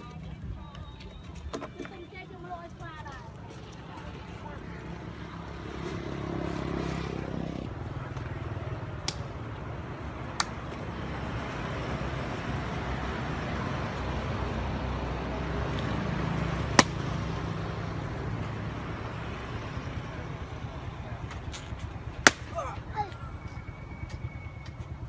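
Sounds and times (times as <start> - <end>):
sharp snaps: 9.0 - 9.4, 10.3 - 10.8, 16.8 - 17.1.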